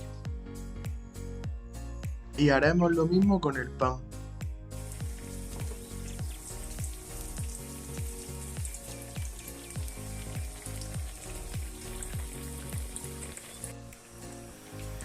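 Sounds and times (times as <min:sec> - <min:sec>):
background music with bass beat: 0:00.0 - 0:15.0
bread frying in hot oil: 0:04.8 - 0:15.0.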